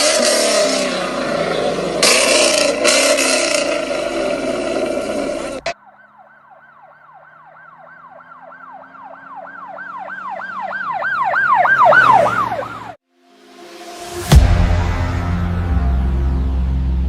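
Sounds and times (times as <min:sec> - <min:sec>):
emergency siren yelping: 0:00.0 - 0:13.0
rising swoosh: 0:11.7 - 0:17.0
loud bang: 0:13.4 - 0:17.0.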